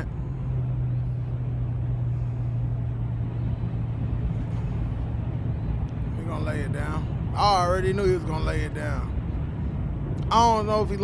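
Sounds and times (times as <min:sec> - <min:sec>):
engine droning: 0:00.0 - 0:11.0
road noise: 0:00.0 - 0:11.0.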